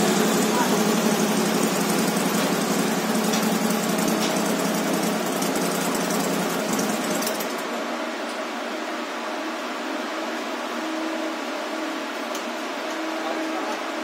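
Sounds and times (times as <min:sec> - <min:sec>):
motorcycle engine idling: 0:00.0 - 0:07.5
cooling fan rushing: 0:00.0 - 0:14.0.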